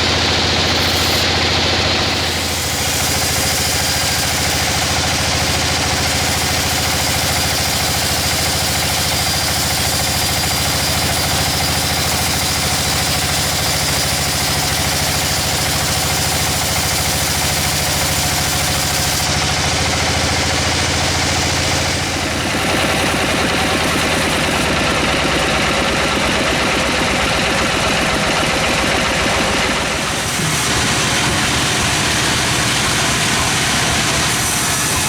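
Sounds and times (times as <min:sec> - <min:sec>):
dense machinery hiss: 0:00.0 - 0:05.6
sawmill engine drone: 0:00.0 - 0:35.0.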